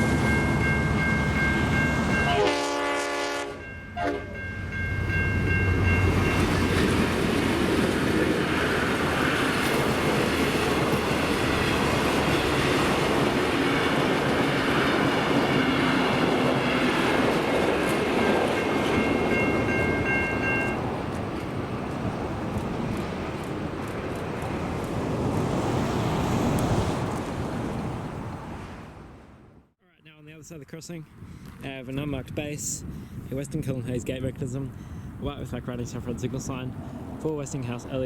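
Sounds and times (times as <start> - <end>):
level crossing bells ringing: 0.0 - 2.6, 3.6 - 6.6, 18.1 - 20.8
train passing: 0.0 - 29.4, 34.6 - 38.0
diesel locomotive horn: 2.0 - 4.4.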